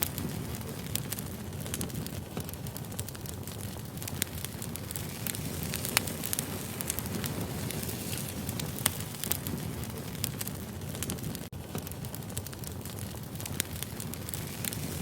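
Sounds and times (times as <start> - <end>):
firewood burning and crackling: 0.0 - 15.0.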